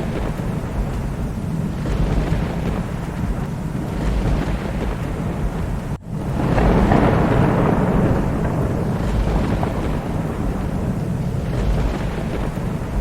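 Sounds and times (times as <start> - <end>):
heavy rain: 0.0 - 13.0
thunder rumbling: 0.0 - 13.0.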